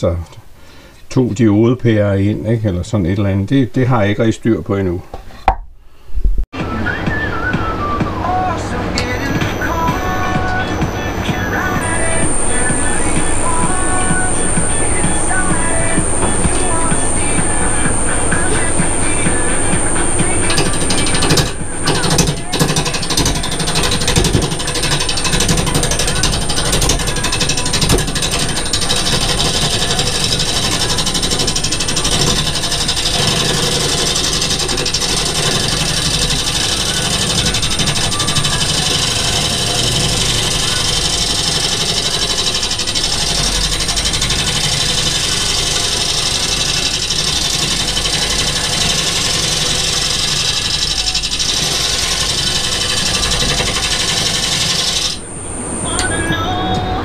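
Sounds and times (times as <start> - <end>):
wood lathe running: 6.6 - 57.0
turning tool cutting wood: 8.7 - 55.3.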